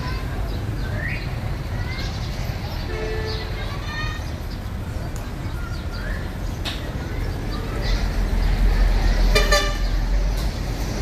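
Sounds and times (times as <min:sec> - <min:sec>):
road vehicle passing: 0:00.0 - 0:11.0
vehicle horn toot: 0:09.4 - 0:09.9.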